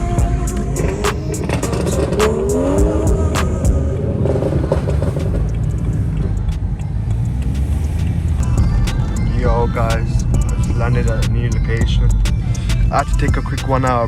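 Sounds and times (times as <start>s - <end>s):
rising pitch glide: 0.0s - 10.9s
background music ticking beat: 0.0s - 14.0s
car engine rumble: 0.0s - 14.0s.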